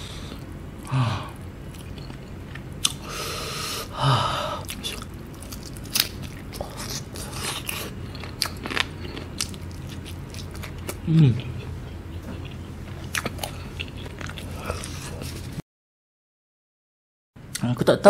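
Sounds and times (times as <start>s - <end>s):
chewing with wet mouth clicks: 1.7s - 3.0s, 4.6s - 15.0s.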